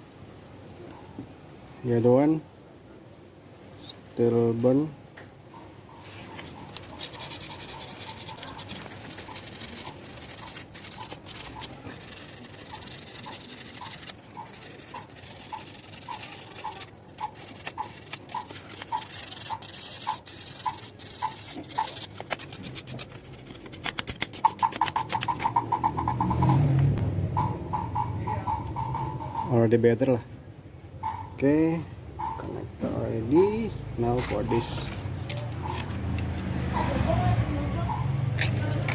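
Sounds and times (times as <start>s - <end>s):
sandpaper scratching metal: 6.2s - 26.7s, 34.1s - 36.0s, 38.4s - 38.9s.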